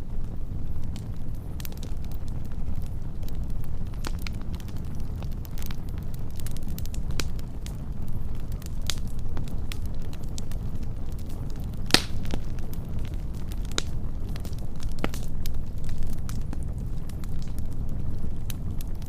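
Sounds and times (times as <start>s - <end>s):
wood fire crackling: 0.0s - 19.0s
loud fire pop: 11.9s - 12.5s.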